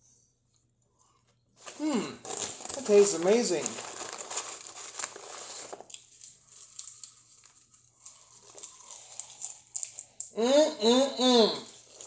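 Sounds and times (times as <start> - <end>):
popcorn bag crunching and crinkling: 1.6 - 10.4, 11.6 - 12.0.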